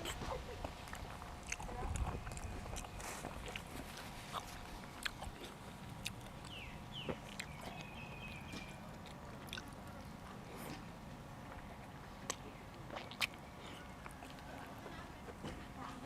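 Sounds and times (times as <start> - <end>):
person chewing and crunching food: 0.0 - 15.6.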